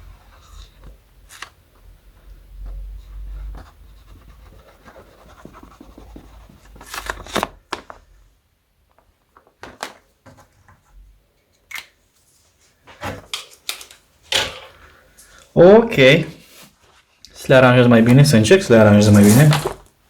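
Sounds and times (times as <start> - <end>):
marker scratching on balloon: 3.5 - 6.9.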